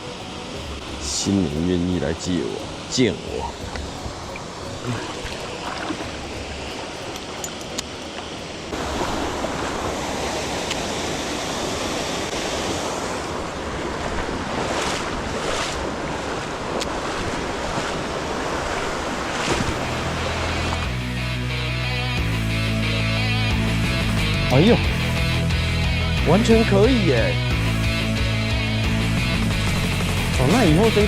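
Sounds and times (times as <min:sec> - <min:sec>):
stream water flowing: 0:00.0 - 0:21.2.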